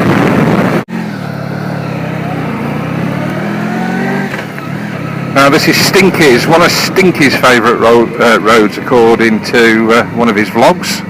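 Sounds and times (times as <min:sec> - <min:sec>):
wind noise on microphone: 0:00.0 - 0:00.9
motorcycle engine accelerating: 0:00.0 - 0:10.3.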